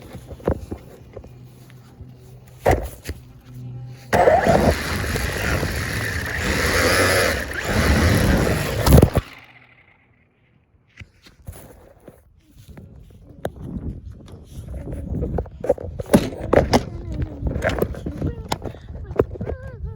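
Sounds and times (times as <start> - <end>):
toy car rolling on hard ground: 4.1 - 10.2.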